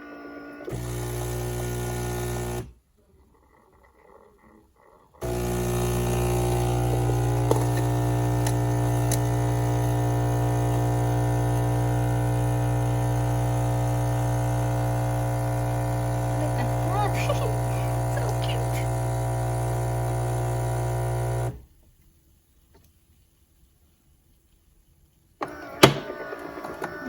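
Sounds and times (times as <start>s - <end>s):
espresso machine humming: 0.0s - 2.7s, 5.2s - 21.6s.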